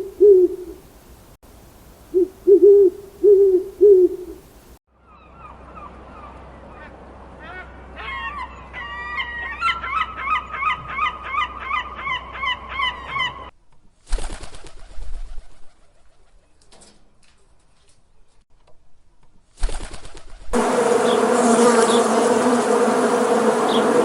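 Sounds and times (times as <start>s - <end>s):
birds chirping rapidly: 23.5s - 24.0s.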